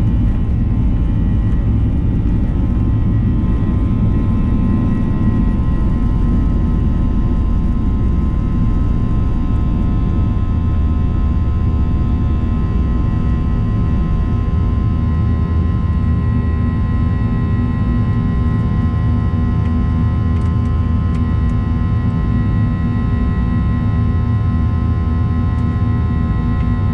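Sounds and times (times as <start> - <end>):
jet engine roar in cabin: 0.0 - 26.9.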